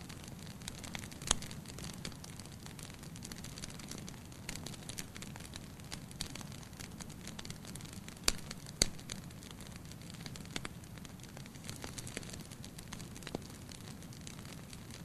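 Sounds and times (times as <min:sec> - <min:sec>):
wood fire burning in fireplace: 0:00.0 - 0:15.0.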